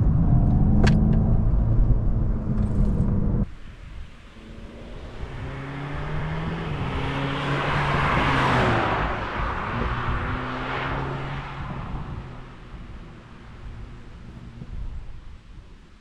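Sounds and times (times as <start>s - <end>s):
car driving past: 4.2s - 14.1s.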